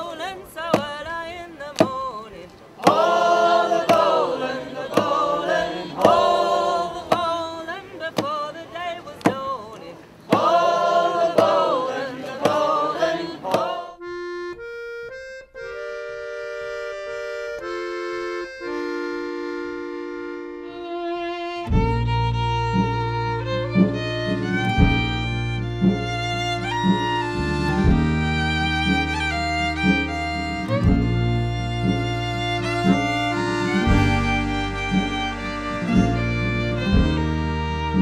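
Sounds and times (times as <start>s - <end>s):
voices singing over a beat: 0.0s - 14.1s
accordion held notes: 2.8s - 8.6s, 10.3s - 38.0s
bass: 14.0s - 38.0s.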